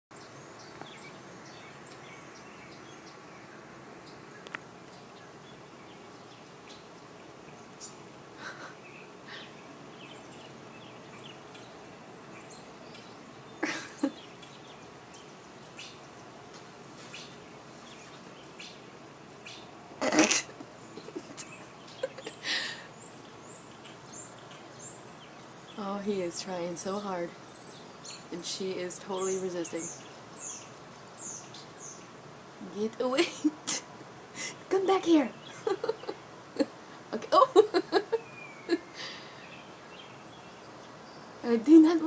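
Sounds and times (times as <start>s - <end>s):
blackbirds calling and chirping: 0.1s - 42.0s
steady outdoor hiss: 0.1s - 42.0s.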